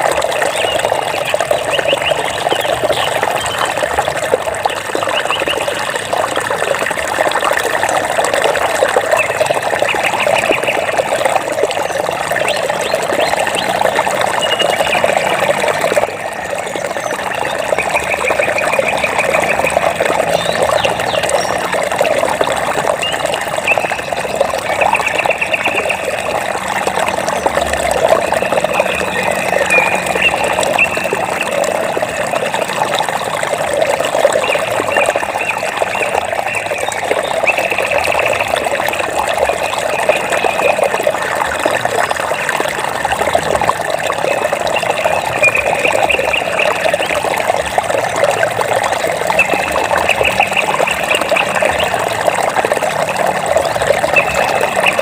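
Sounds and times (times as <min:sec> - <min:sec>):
water trickling and splashing: 0:00.0 - 0:55.0
rapid chirping trills: 0:28.2 - 0:32.2.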